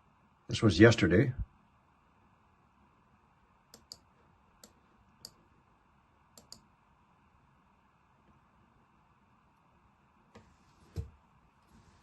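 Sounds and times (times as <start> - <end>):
faint computer mouse clicks: 3.7 - 5.4, 6.4 - 6.7.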